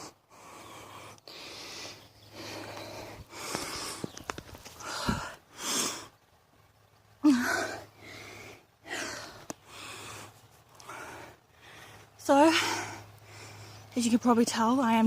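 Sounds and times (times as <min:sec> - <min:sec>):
woman breathing hard: 0:00.0 - 0:06.2, 0:07.2 - 0:13.9
woman gasping: 0:07.2 - 0:10.2.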